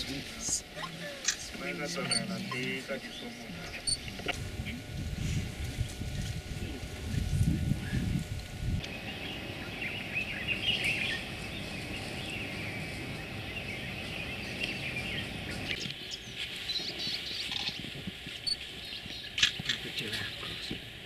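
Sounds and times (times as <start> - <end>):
low outdoor rumble: 0.0 - 21.0
birds chirping and calling: 8.8 - 20.8.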